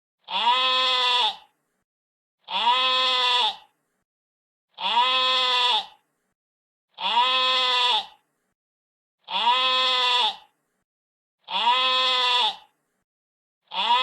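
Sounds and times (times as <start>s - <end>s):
sheep bleating: 0.2s - 1.5s, 2.4s - 3.7s, 4.8s - 6.0s, 7.0s - 8.2s, 9.2s - 10.5s, 11.4s - 12.7s, 13.7s - 14.0s.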